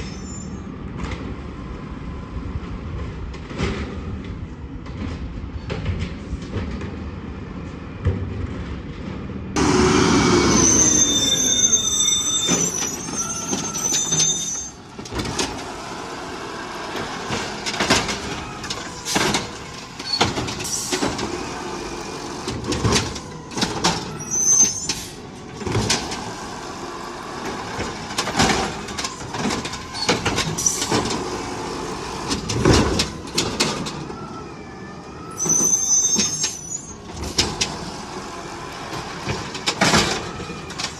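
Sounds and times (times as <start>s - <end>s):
high metal squealing: 9.6s - 33.9s, 35.2s - 37.1s.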